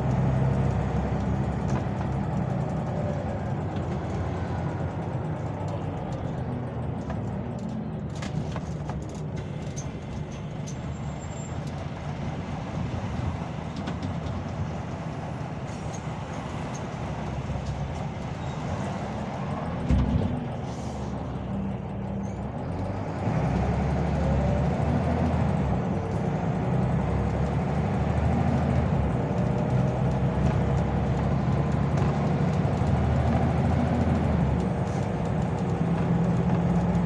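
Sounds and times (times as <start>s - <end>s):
bus engine rumble: 0.0s - 37.0s
light rattles and clicks: 1.1s - 22.9s, 24.5s - 37.0s.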